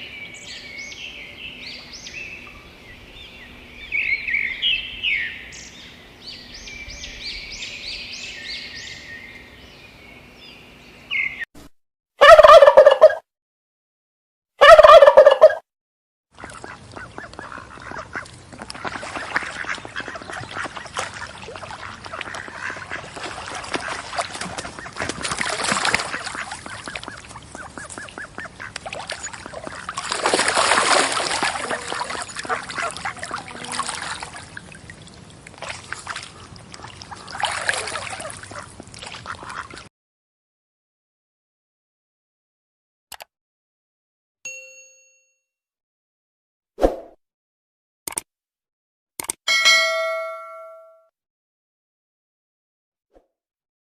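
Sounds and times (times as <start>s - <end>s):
flock of fowl calling: 14.6s - 15.6s
fowl loud pitched call: 14.6s - 15.6s.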